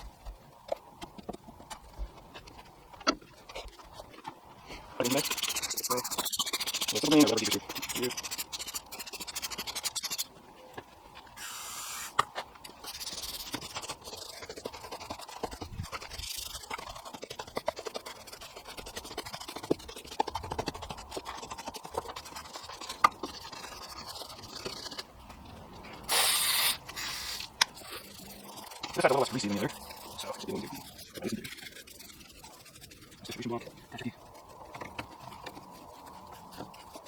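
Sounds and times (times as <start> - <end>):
brush bristles scrubbing: 3.4 - 10.4, 11.3 - 37.0.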